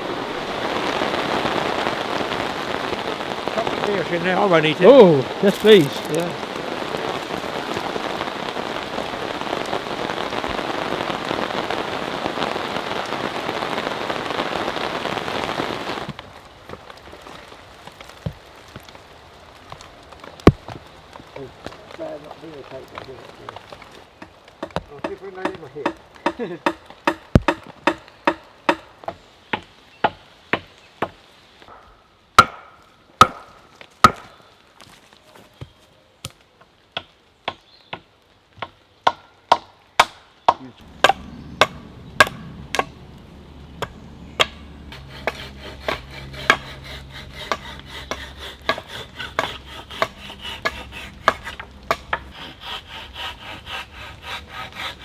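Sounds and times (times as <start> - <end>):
steady low noise: 40.8 - 47.4
hammer blows on wood: 43.8 - 55.0.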